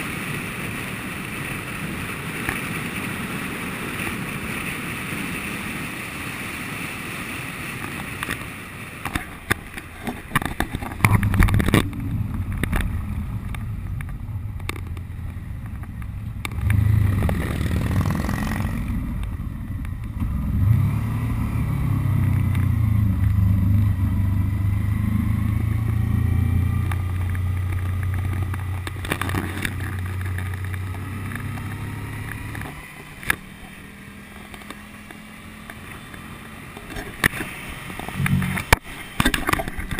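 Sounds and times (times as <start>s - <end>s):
wind noise on microphone: 0.0s - 20.9s
motorcycle engine running: 0.0s - 39.9s.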